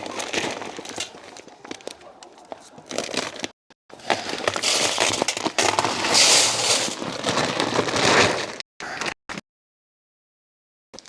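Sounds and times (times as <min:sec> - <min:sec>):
grain pouring into a can: 0:04.1 - 0:08.6.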